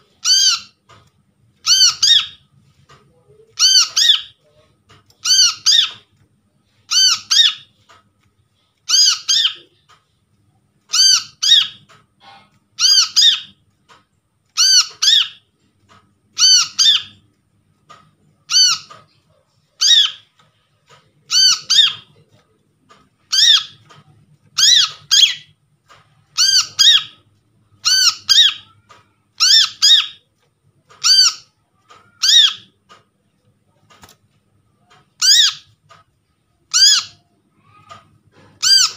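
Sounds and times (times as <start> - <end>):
bird chirping: 0.1 - 0.8, 1.6 - 2.5, 3.6 - 6.1, 6.9 - 7.7, 8.9 - 9.8, 10.9 - 13.6, 14.6 - 17.2, 17.9 - 22.4, 23.0 - 27.2, 27.8 - 30.2, 31.0 - 33.0, 34.9 - 36.0.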